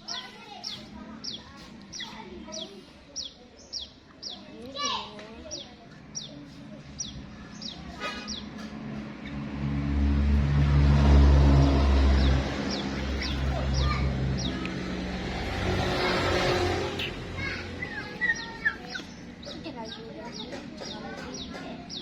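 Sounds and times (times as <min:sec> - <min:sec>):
bird chirping: 0:00.0 - 0:04.5, 0:05.4 - 0:08.7, 0:12.2 - 0:14.8, 0:15.8 - 0:22.0
vehicle engine passing: 0:07.2 - 0:19.8.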